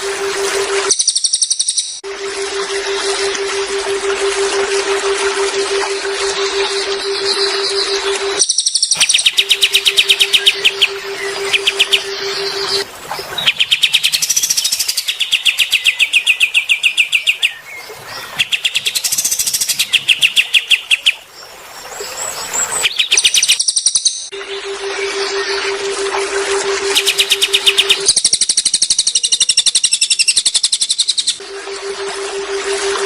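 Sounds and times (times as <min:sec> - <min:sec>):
steady low hum: 0:02.0 - 0:15.4, 0:24.3 - 0:28.2, 0:31.4 - 0:33.0
songbird singing in trills: 0:06.6 - 0:21.3, 0:22.0 - 0:25.7, 0:26.8 - 0:31.4.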